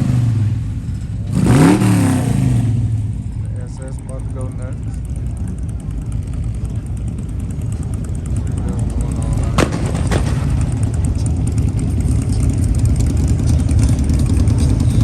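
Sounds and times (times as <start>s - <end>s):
car engine revving high: 0.0s - 3.0s
sharp cracks: 9.4s - 11.2s.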